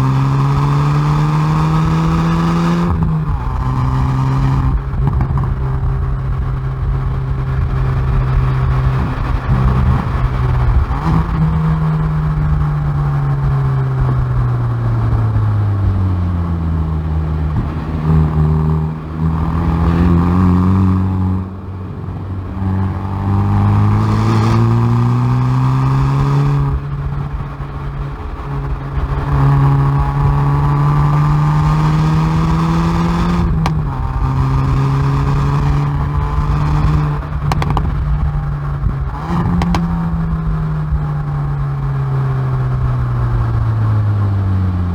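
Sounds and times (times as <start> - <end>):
car engine revving on track: 0.0 - 44.9
exhaust cracks: 1.9 - 15.4, 26.5 - 42.0.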